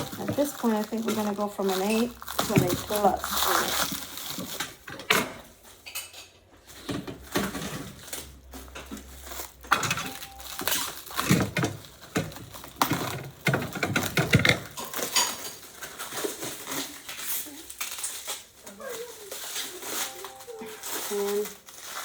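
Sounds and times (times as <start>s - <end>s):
metal parts clinking and rattling: 0.0s - 22.0s.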